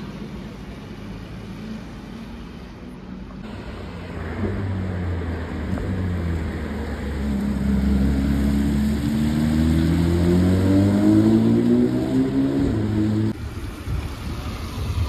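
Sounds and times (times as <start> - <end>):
car engine accelerating: 3.4 - 13.4.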